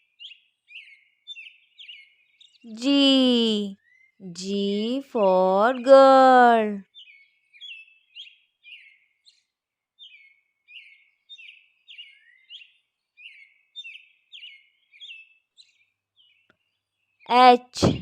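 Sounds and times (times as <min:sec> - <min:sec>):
birds chirping: 0:00.2 - 0:09.4.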